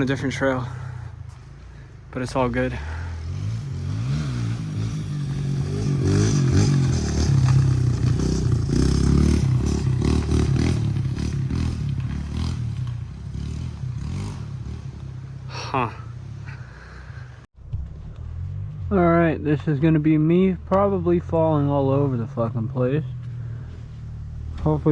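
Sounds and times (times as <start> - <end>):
dirt bike engine revving: 2.7 - 16.6
knocks and clatter over rough ground: 6.1 - 13.9, 17.6 - 20.9.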